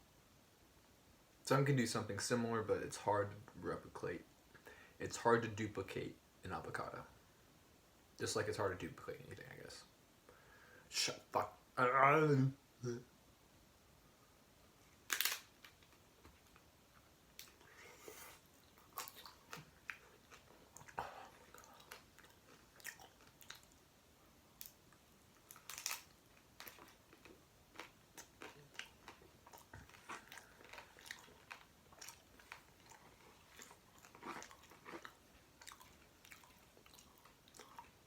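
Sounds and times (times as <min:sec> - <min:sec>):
close chewing and biting: 0:18.7 - 0:23.8, 0:25.5 - 0:38.0.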